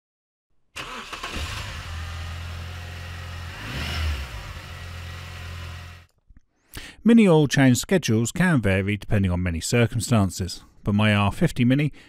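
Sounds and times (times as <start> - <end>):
car engine idling and revving: 0.8 - 6.1.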